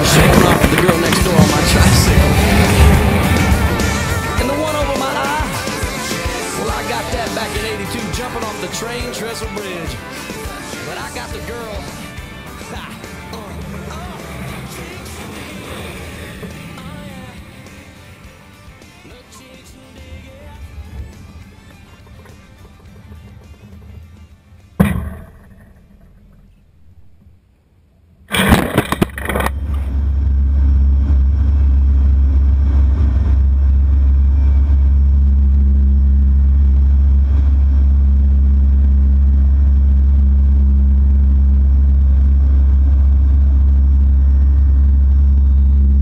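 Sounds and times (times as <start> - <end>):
loud burst of noise: 0.0 - 8.7, 28.2 - 46.0
turboprop engine drone: 0.0 - 27.5, 29.1 - 46.0
sharp knock: 24.8 - 27.3.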